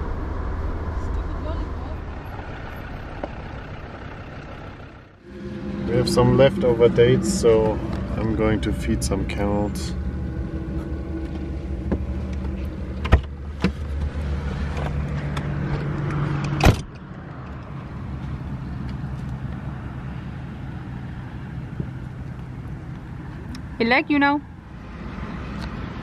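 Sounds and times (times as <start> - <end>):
car engine hum inside cabin: 0.0 - 26.0.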